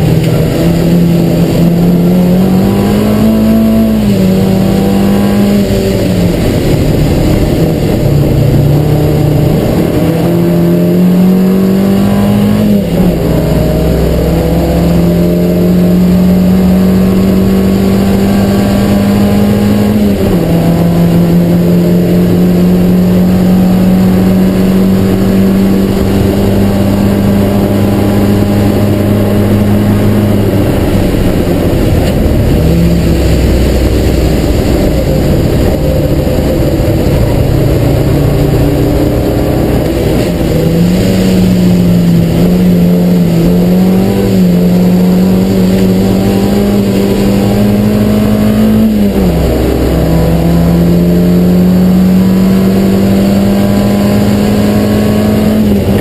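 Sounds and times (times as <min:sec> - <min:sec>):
racing car engine from cabin: 0:00.0 - 0:56.0.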